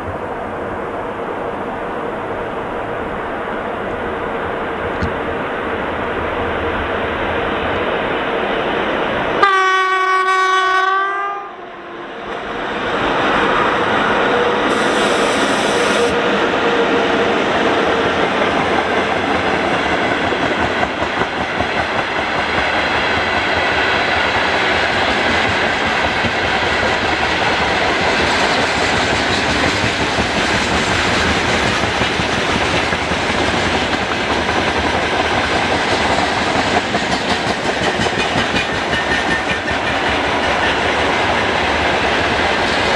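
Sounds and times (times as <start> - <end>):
freight train rolling past: 0.0 - 42.9
locomotive horn blast: 9.4 - 12.1, 14.4 - 16.2.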